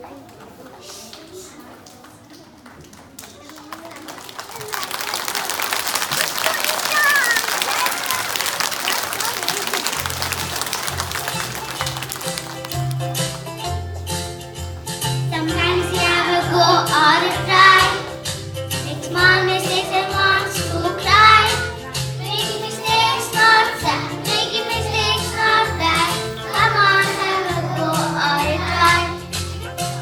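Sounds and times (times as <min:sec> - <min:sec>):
children singing: 0:15.4 - 0:18.3, 0:18.9 - 0:29.4.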